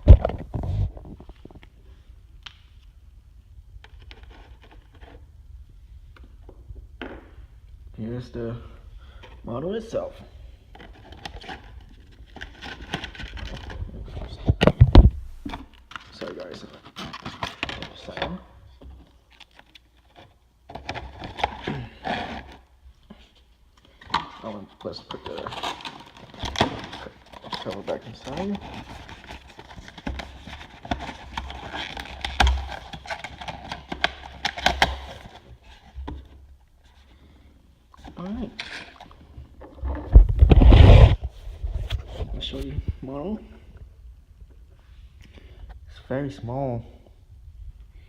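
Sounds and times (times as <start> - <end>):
packaging rustling: 10.7 - 18.4, 23.9 - 37.0.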